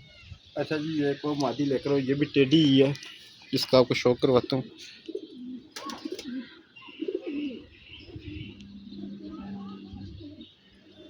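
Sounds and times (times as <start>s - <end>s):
pigeons cooing: 4.2s - 11.0s.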